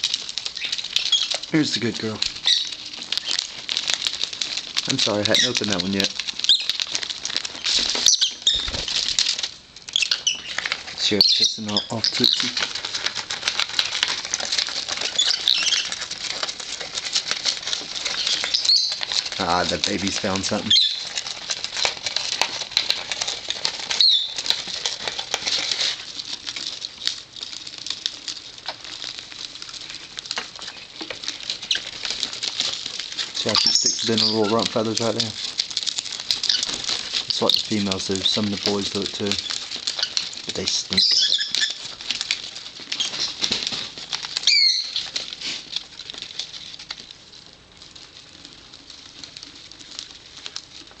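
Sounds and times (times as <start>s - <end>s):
bird chewing a toy: 0.0s - 51.0s
high bird chirp: 2.4s - 3.4s, 10.0s - 12.5s, 18.2s - 19.0s, 20.6s - 21.0s, 24.0s - 24.4s, 40.9s - 41.8s, 44.4s - 45.1s.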